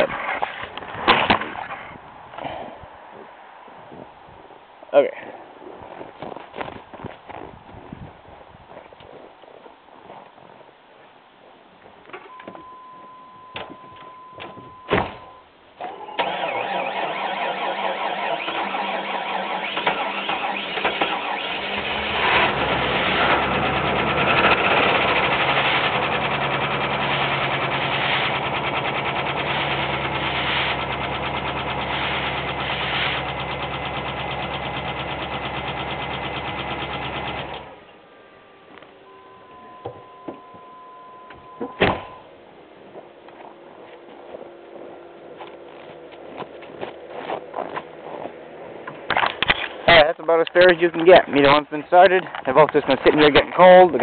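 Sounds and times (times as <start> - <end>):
engine cranking and idling: 15.8 - 37.9.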